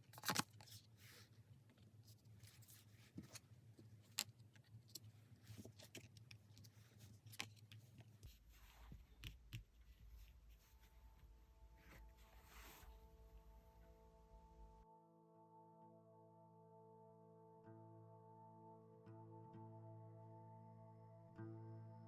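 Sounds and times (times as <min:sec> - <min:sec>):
low hum: 0:08.6 - 0:22.0.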